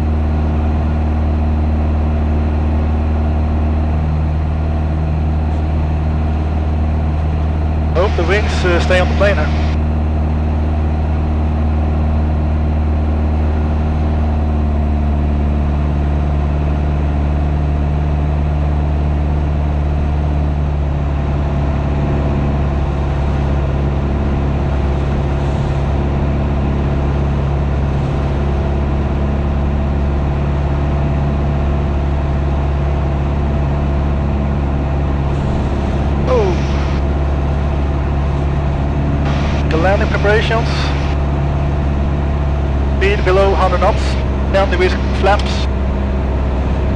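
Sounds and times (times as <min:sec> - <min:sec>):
airplane engine and propeller droning: 0:00.0 - 0:46.9.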